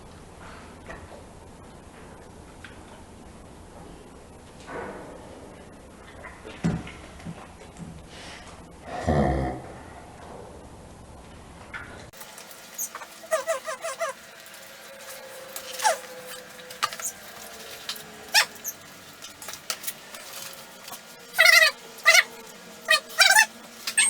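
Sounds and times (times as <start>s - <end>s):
dog whining: 12.7s - 24.0s.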